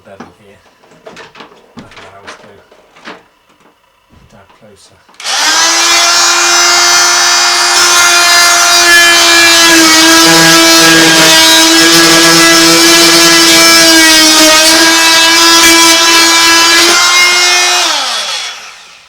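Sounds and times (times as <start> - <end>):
power tool motor whining: 5.2 - 19.0.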